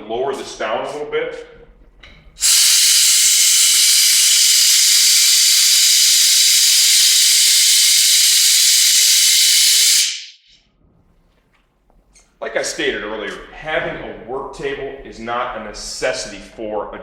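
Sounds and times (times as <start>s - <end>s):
compressed air hissing: 2.4s - 10.5s.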